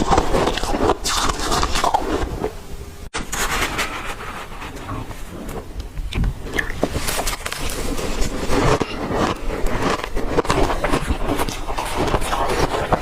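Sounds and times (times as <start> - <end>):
ice being chewed: 0.0 - 2.4, 6.0 - 13.0.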